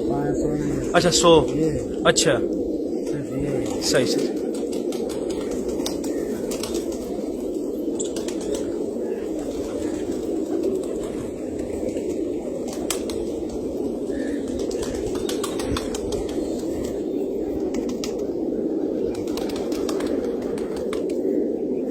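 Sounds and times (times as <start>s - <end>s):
birds cooing: 0.0s - 21.9s.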